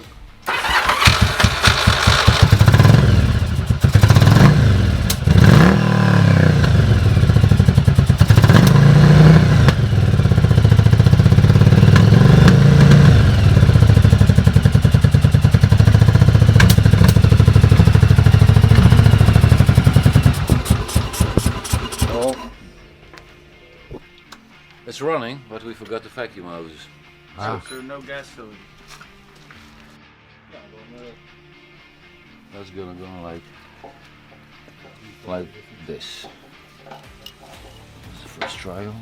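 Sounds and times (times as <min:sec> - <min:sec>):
motorcycle engine revving: 0:00.5 - 0:22.6.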